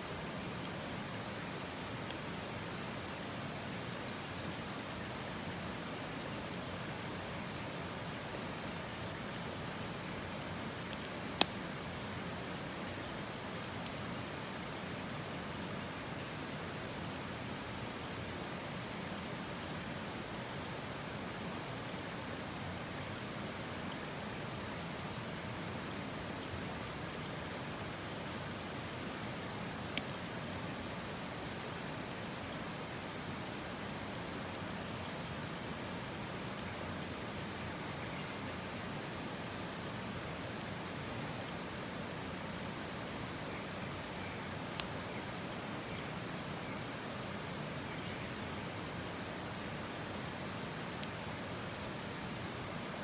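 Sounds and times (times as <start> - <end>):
steady hiss: 0.0 - 53.0
faint ticks: 10.4 - 11.6, 29.8 - 30.6, 44.6 - 45.0.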